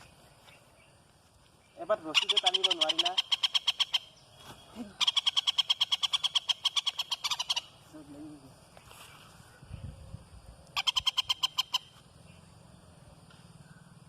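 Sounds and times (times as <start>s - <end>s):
rapid trilled animal call: 2.1s - 4.2s, 5.0s - 7.8s, 10.8s - 12.0s.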